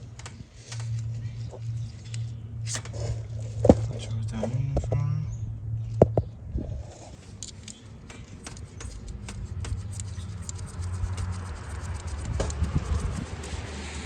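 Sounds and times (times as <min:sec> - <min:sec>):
steady low hum: 0:00.0 - 0:14.0
hand tools clicking on metal: 0:07.3 - 0:12.6.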